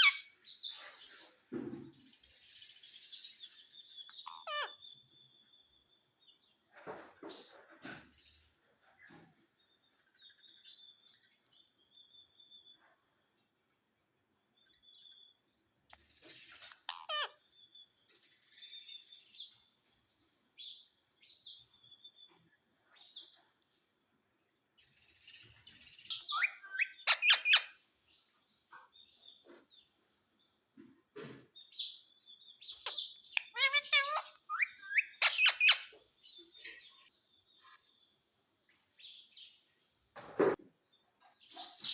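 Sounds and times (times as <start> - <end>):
parrot squawking: 0.0 - 0.3, 4.2 - 4.8, 16.7 - 17.4, 26.2 - 27.8, 32.8 - 36.0
parrot chirping and calling: 0.0 - 0.4, 4.1 - 4.9, 16.6 - 17.5, 26.1 - 27.8, 32.8 - 36.0.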